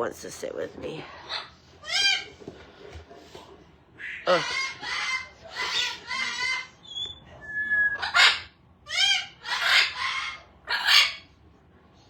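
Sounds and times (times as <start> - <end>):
parrot squawking: 1.0 - 2.4, 4.0 - 7.2, 7.8 - 11.4.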